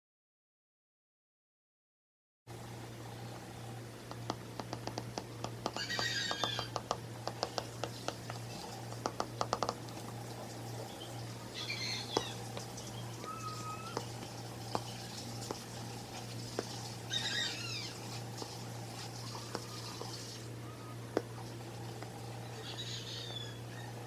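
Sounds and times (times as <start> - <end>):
bird chirps: 10.8 - 14.2, 17.1 - 18.0, 22.4 - 24.0.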